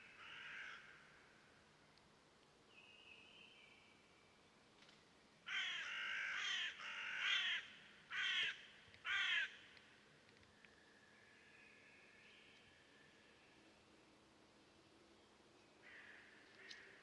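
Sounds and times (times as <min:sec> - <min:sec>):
bird giving harsh raspy calls: 0:05.5 - 0:09.6.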